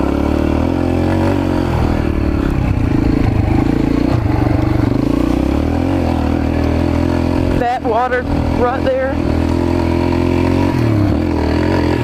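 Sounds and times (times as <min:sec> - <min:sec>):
mini bike engine running: 0:00.0 - 0:12.0.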